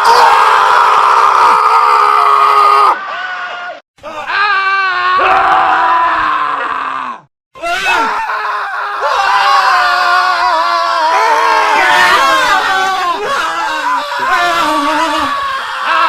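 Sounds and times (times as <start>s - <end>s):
men screaming: 0.0s - 16.0s.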